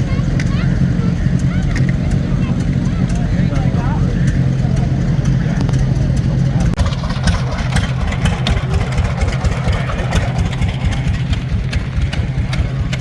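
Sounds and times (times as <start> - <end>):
engine idling with low chugging: 0.0 - 13.0
sharp clicks: 1.4 - 6.8.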